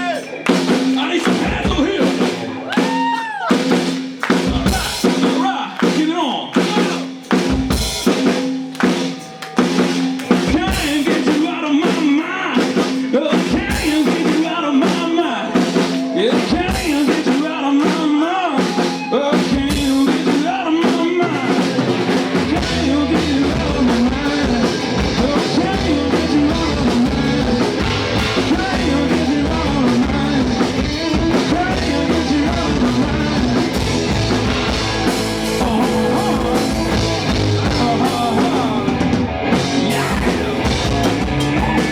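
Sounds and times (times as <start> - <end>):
drum kit: 0.0 - 41.9
live rock band playing: 0.0 - 41.9
heavy bass: 19.6 - 41.9.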